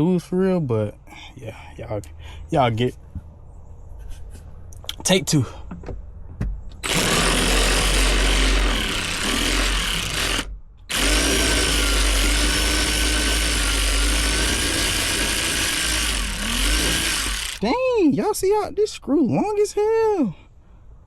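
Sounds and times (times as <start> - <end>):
cordless drill whining: 6.8 - 17.7.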